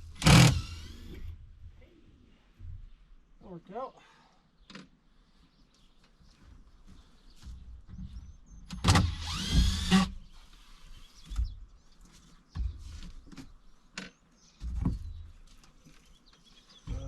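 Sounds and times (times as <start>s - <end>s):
small electric motor whirring: 0.2s - 1.3s, 8.8s - 10.2s
knocks and clunks: 7.4s - 10.2s.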